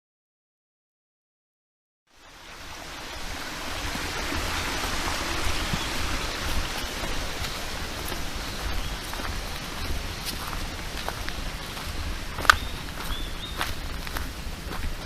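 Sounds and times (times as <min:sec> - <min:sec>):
stream running water: 0:02.1 - 0:15.0.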